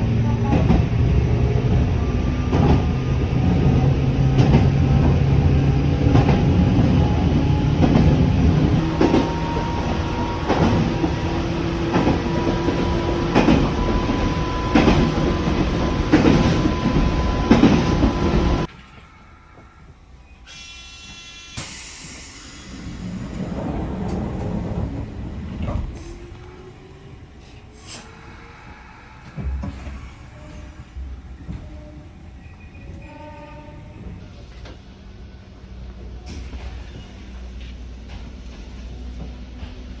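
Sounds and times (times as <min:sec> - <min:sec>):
train wheels clicking over rail joints: 0:02.4 - 0:19.1.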